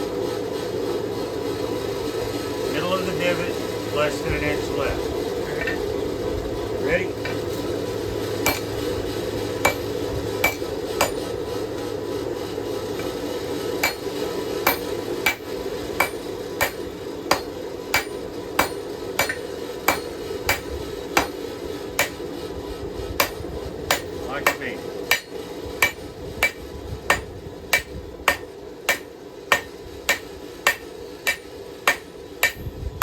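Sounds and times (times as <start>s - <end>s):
hammer striking hot steel on anvil: 5.5s - 5.9s, 6.9s - 12.0s, 12.9s - 22.3s, 23.1s - 32.8s.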